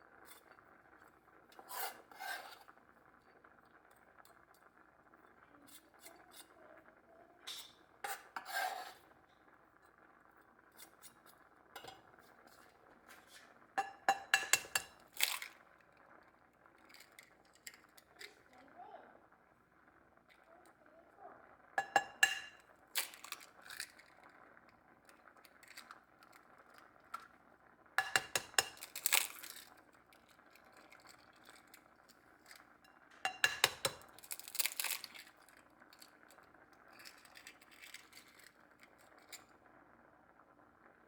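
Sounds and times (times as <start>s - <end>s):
crinkling: 10.8s - 18.6s, 22.0s - 39.6s
dishes and glassware clinking: 11.8s - 12.1s, 13.1s - 15.6s, 21.8s - 23.5s, 28.0s - 29.7s, 33.3s - 35.4s.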